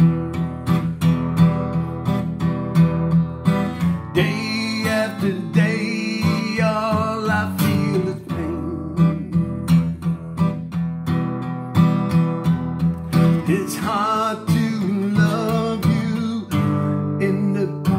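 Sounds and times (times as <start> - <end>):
acoustic guitar strumming: 0.0 - 17.9
person singing: 4.0 - 10.7, 13.3 - 17.9.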